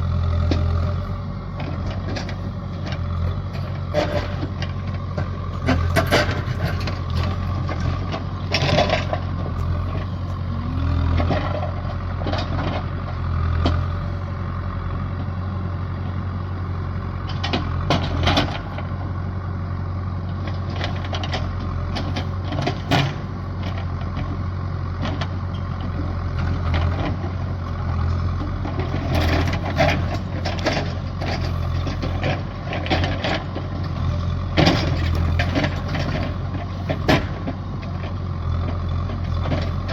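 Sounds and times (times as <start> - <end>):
large engine humming: 0.0 - 39.9.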